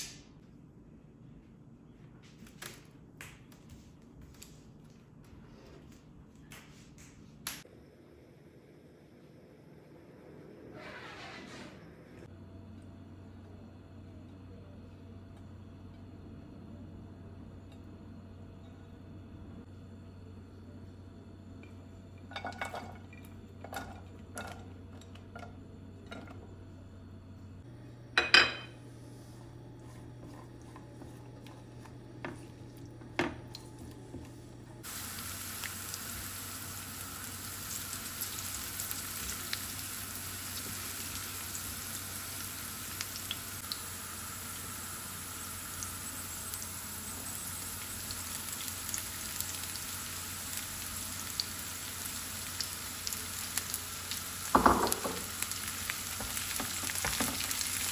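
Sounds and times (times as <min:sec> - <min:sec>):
vegetables sizzling in oil: 0:34.8 - 0:57.9
knocks on a pan: 0:54.5 - 0:55.3.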